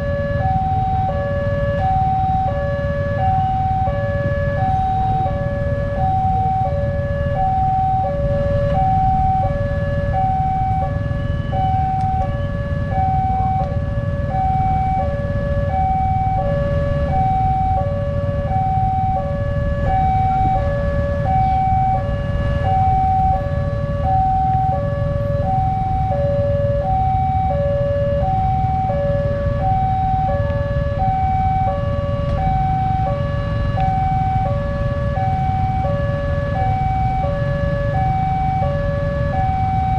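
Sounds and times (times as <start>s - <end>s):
steady low rumble: 3.4s - 27.4s.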